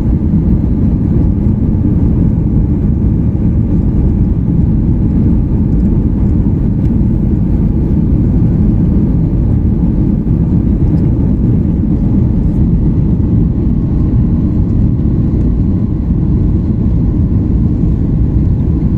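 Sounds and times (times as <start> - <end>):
jet engines roaring: 0.0 - 18.9.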